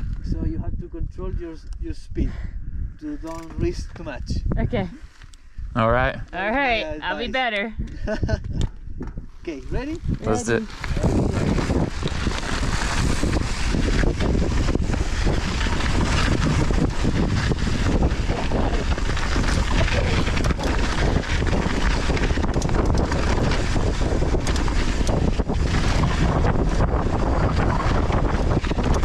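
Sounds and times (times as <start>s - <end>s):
wind buffeting microphone: 0.0s - 29.0s
tyres on loose soil: 10.5s - 29.0s
bike knocking and rattling: 10.8s - 29.0s.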